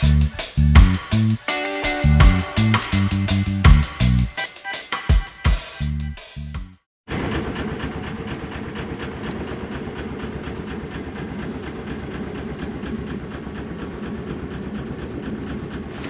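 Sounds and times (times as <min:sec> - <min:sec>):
music track: 0:00.0 - 0:06.7
boat engine running: 0:07.2 - 0:16.0.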